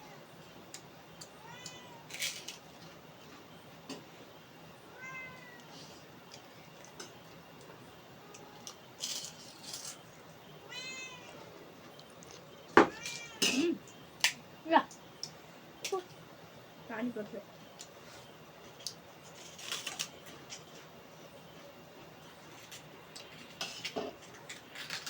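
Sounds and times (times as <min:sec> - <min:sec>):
cat meowing: 0:01.4 - 0:02.2, 0:04.9 - 0:05.7, 0:10.7 - 0:11.5, 0:12.8 - 0:13.7.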